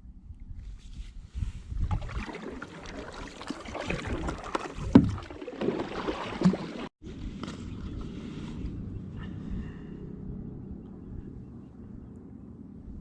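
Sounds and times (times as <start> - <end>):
kayak paddles splashing water: 1.9 - 8.7.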